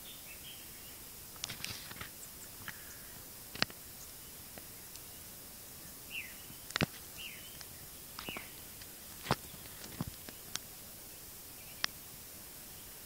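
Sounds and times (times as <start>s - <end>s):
bird chirping: 0.0s - 1.1s, 3.9s - 13.0s.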